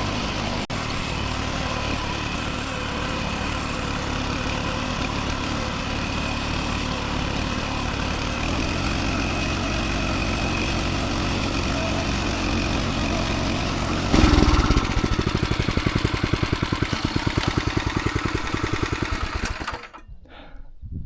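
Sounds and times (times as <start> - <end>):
farm machine engine chugging: 0.0 - 20.0.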